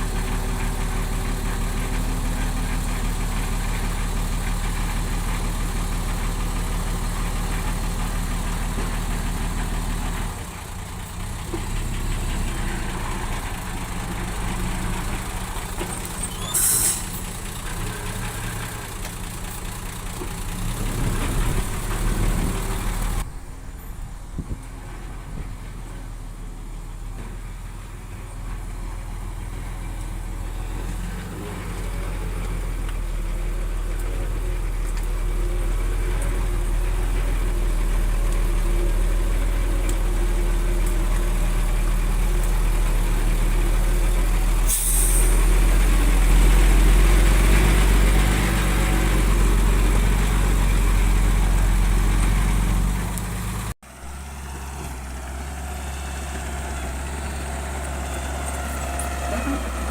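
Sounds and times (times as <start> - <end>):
heavy diesel engine rumbling: 0.0 - 59.9
short sharp hiss: 16.4 - 17.2, 44.7 - 45.4.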